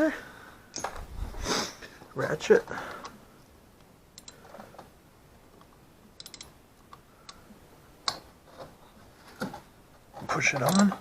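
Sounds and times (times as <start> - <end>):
socket ratchet clicking: 4.2 - 4.4, 6.2 - 6.6.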